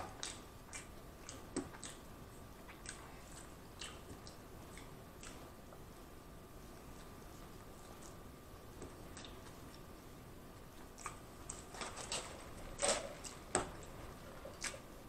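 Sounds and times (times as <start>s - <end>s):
chewing mouth clicks: 0.2s - 2.0s, 2.7s - 5.4s, 10.8s - 11.6s.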